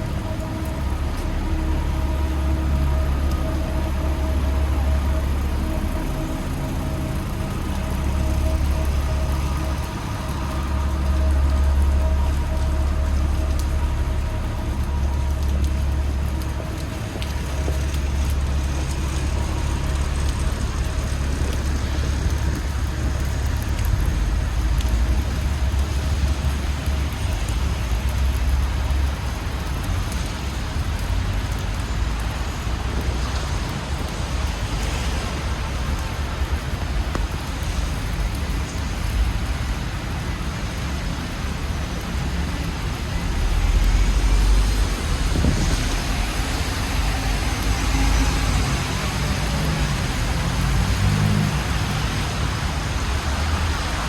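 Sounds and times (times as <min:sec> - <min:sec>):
cars passing with tyre hiss: 0:00.0 - 0:54.0
low engine rumble: 0:00.0 - 0:54.0
rain pattering: 0:00.0 - 0:54.0.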